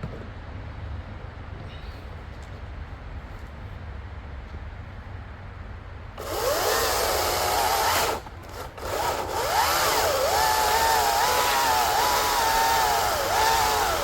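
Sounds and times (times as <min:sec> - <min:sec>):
electric chainsaw cutting log: 0:06.2 - 0:14.0.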